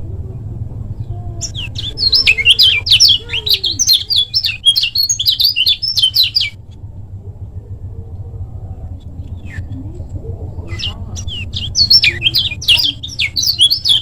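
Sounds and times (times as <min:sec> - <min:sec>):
steady low hum: 0:00.0 - 0:14.0
bird singing high chirps: 0:01.4 - 0:06.6, 0:10.6 - 0:14.0.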